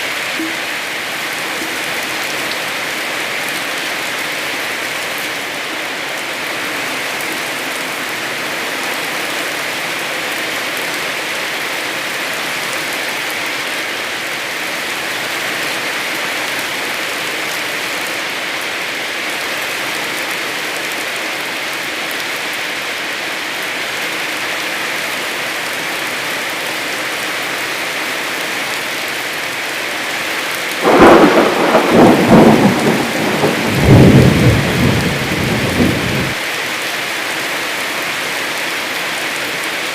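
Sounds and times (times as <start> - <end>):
heavy rain falling: 0.0 - 39.9
thunder rumbling: 30.8 - 36.4.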